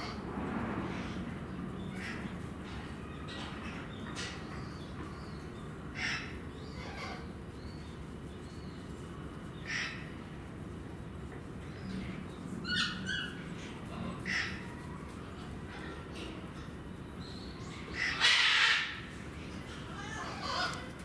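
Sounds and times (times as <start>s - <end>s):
low background hum: 0.0s - 21.0s
harsh bird calls: 11.6s - 21.0s.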